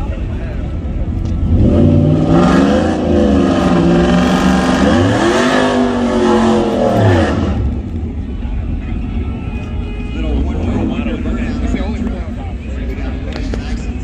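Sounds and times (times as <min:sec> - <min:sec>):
vehicle engine revving: 0:01.0 - 0:08.8.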